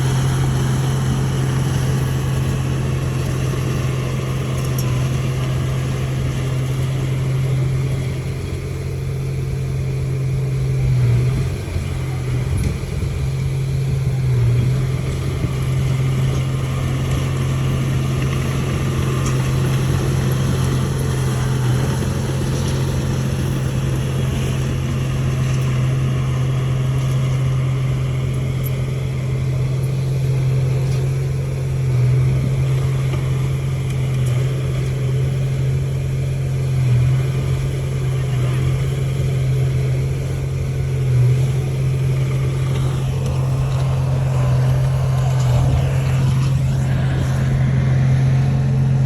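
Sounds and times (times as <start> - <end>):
heavy diesel engine droning: 0.0 - 49.0.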